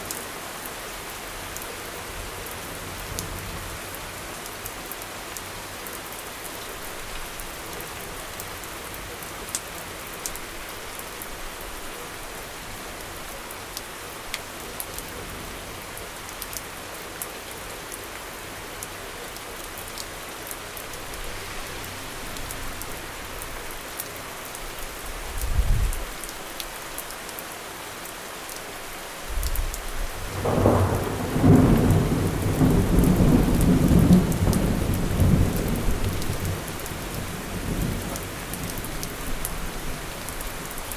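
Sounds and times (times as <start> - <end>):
steady rain falling: 0.0 - 40.9
thunder rumbling: 30.2 - 39.1.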